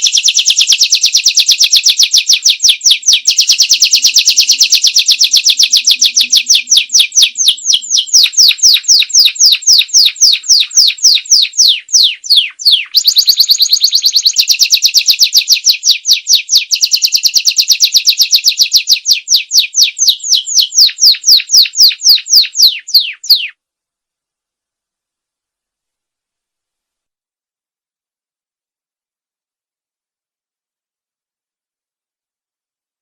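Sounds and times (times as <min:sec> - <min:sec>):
canary singing in trills: 0:00.0 - 0:23.6.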